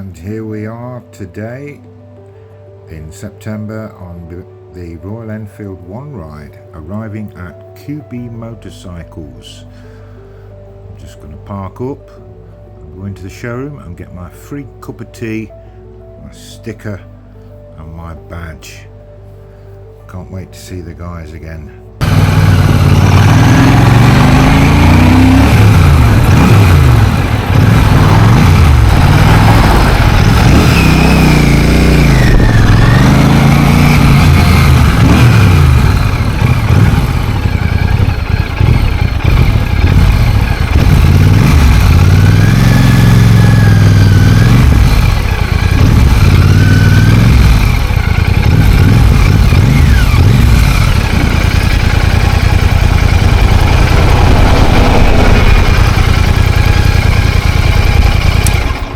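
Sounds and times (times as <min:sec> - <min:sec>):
motorcycle engine revving: 0:22.0 - 0:58.9.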